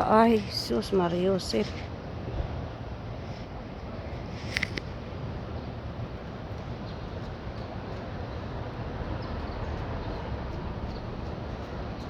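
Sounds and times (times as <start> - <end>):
small birds chirping: 6.6 - 12.0.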